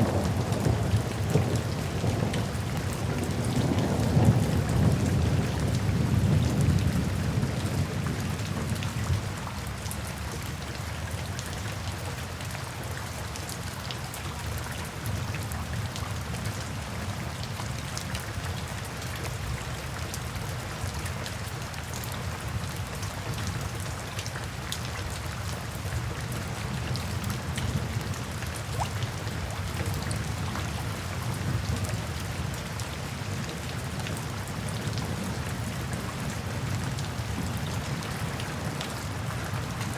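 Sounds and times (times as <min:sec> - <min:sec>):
low rumble of thunder: 0:00.0 - 0:09.6
rain drops ticking: 0:00.0 - 0:39.9.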